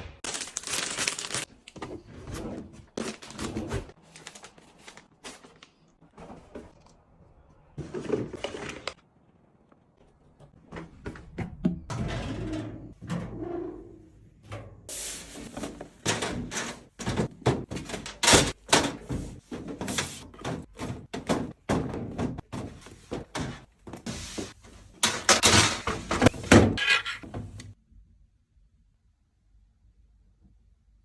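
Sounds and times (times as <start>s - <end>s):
items clicking and thudding: 7.8s - 9.0s, 14.5s - 27.8s.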